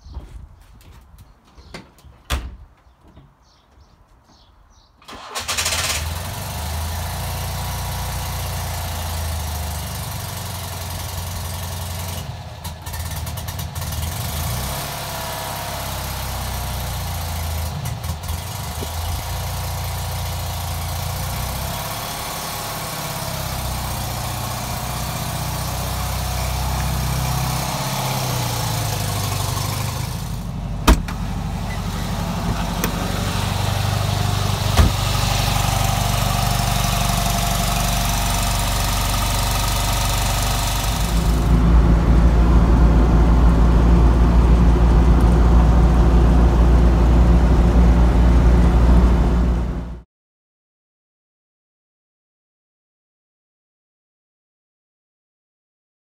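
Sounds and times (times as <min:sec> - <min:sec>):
two-cylinder engine idling: 0:05.1 - 0:14.2, 0:15.3 - 0:42.5.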